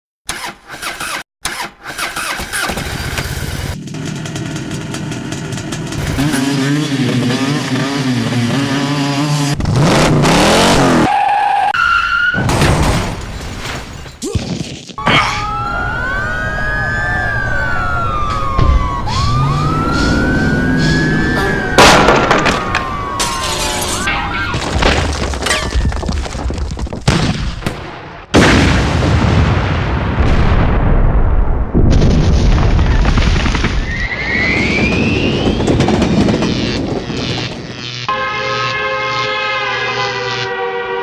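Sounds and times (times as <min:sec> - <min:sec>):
dirt bike engines revving: 0:03.2 - 0:11.1, 0:15.4 - 0:24.1, 0:34.6 - 0:40.4.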